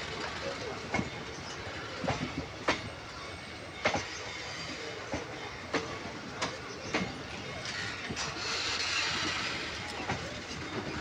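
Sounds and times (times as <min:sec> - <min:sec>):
train coaches rumbling past: 0:00.0 - 0:11.0
wheels clacking on rail joints: 0:05.0 - 0:11.0.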